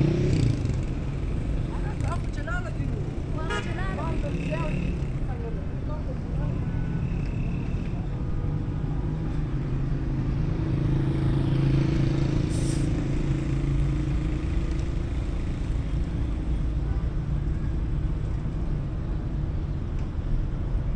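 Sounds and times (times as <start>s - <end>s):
vehicle engine running: 0.0s - 8.0s.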